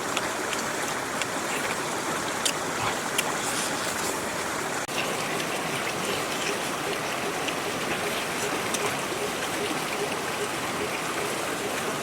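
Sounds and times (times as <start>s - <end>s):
flowing water rushing: 0.0s - 12.0s.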